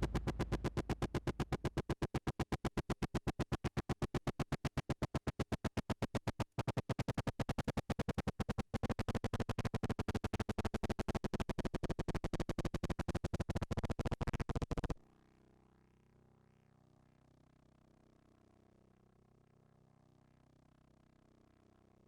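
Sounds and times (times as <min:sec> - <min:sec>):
faint hum: 0:00.0 - 0:01.9
synthesizer harsh noisy clicks: 0:00.0 - 0:15.0.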